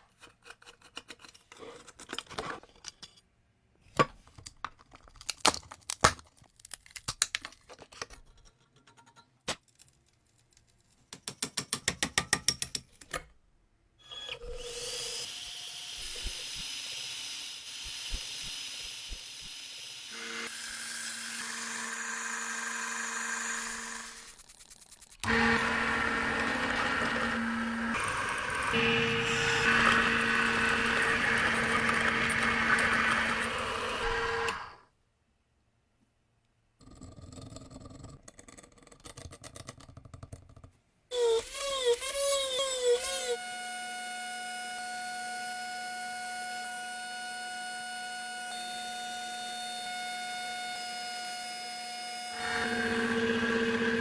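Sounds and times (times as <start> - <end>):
clicks and knocks of hand work: 3.9 - 13.4
power tool running on metal: 14.4 - 24.3, 25.2 - 34.8, 52.3 - 54.0.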